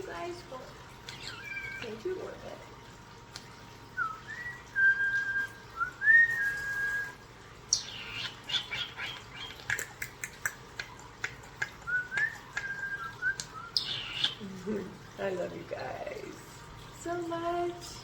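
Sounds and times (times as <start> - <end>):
squeaky bird calls: 1.1 - 1.9, 7.7 - 10.0, 13.7 - 14.4
starlings whistling: 4.0 - 9.8, 11.8 - 14.4
starling clicks: 9.3 - 13.6.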